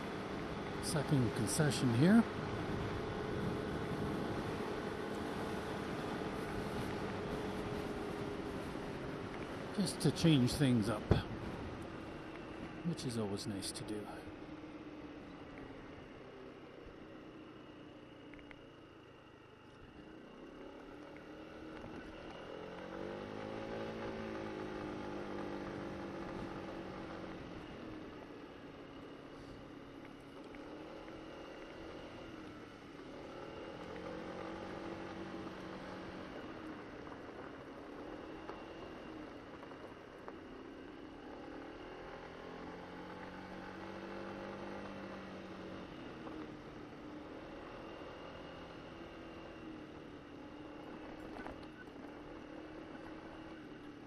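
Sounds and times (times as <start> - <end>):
road and wind noise: 0.0 - 54.0
scooter engine accelerating: 14.4 - 54.0.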